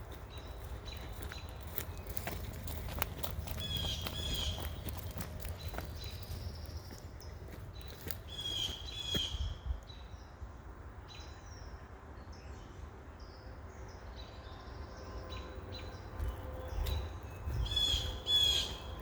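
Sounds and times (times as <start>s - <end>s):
footsteps on muddy ground: 0.0s - 9.3s, 16.0s - 19.0s
low outdoor rumble: 0.0s - 9.8s
birds chirping: 0.0s - 10.1s, 14.9s - 19.0s.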